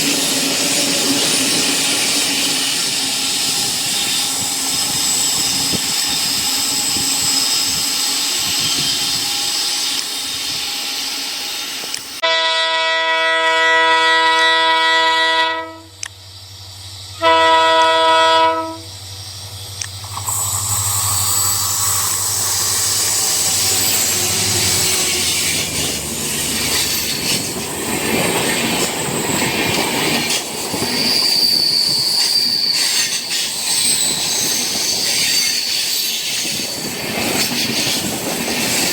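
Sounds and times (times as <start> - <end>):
train wheel squeal: 0.0 - 12.2, 18.6 - 38.9
diesel locomotive horn: 12.2 - 16.1, 17.1 - 19.0.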